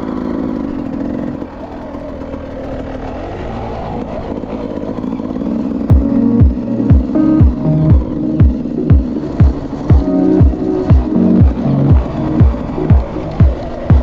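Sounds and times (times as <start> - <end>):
dirt bike engine revving: 0.0 - 14.0
music with heavy kick drum: 5.9 - 14.0.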